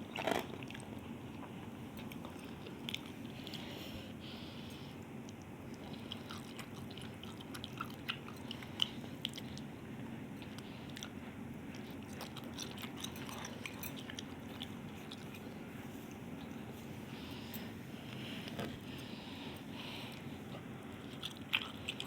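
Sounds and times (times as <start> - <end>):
low background hum: 0.0 - 22.0
person chewing: 5.2 - 9.7, 10.4 - 15.6, 20.0 - 22.0.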